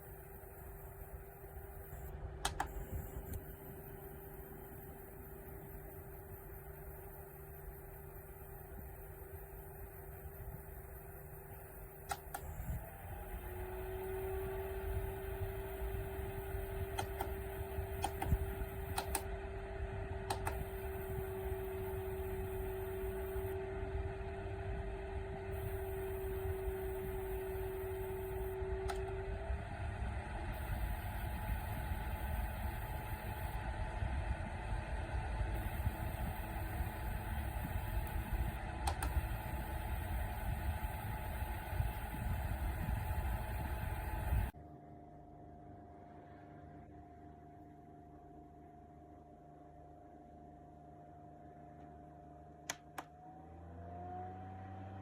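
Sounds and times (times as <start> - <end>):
air cooler fan humming: 0.0 - 44.6
short click: 2.4 - 3.4
light clicks: 2.4 - 3.5, 12.0 - 12.8, 16.9 - 19.3, 20.3 - 20.9, 38.0 - 39.2.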